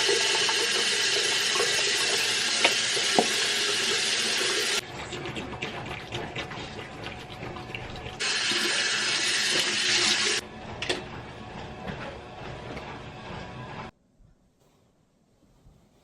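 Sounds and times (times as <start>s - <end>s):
tap water running into sink: 0.0s - 10.4s.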